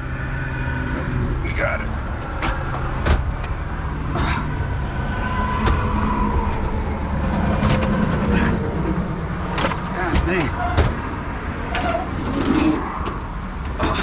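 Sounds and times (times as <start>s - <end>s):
highway traffic rumble: 0.0s - 14.0s.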